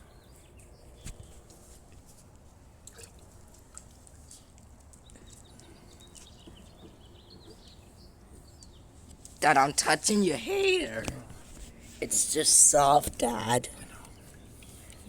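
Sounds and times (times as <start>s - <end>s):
small birds chirping: 4.3s - 11.0s, 11.7s - 15.0s.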